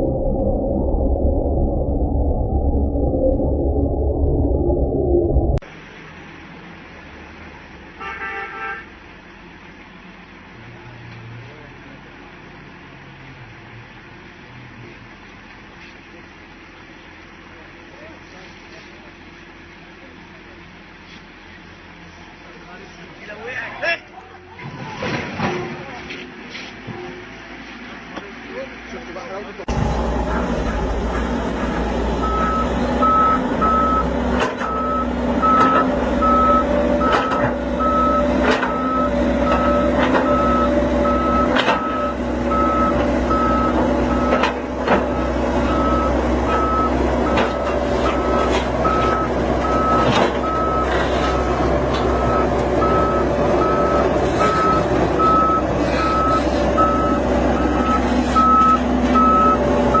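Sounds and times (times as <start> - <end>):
machine engine running: 0.0 - 5.6, 29.7 - 43.7
back-up alarm beeping: 32.2 - 51.0, 52.1 - 60.0
knocks and clanks: 37.0 - 37.6, 38.3 - 38.9.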